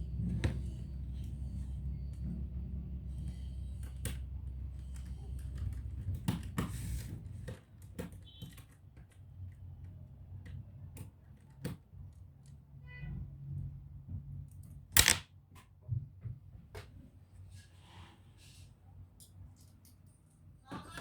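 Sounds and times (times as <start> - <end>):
clicks and taps of laptop parts: 15.0 - 15.7.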